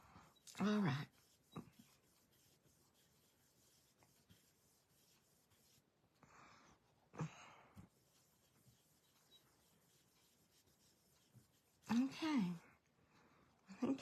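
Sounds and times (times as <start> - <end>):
brush rubbing on ink pad: 0.0 - 6.0, 7.8 - 12.7.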